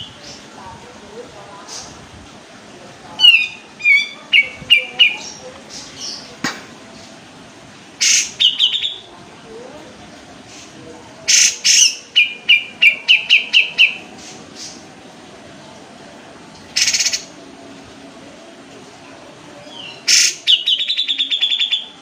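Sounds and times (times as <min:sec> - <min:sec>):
bulbul singing: 0:03.2 - 0:06.5, 0:08.0 - 0:09.1, 0:11.2 - 0:14.9, 0:16.7 - 0:17.4, 0:19.6 - 0:22.0.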